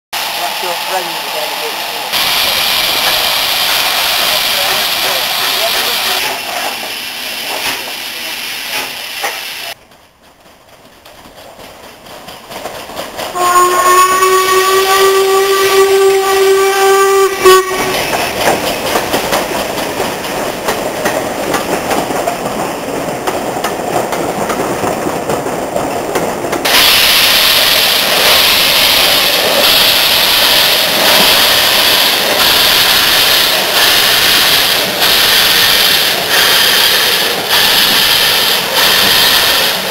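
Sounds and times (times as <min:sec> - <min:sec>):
steam locomotive hissing: 0:00.2 - 0:39.9
steam locomotive whistle blast: 0:13.4 - 0:18.1.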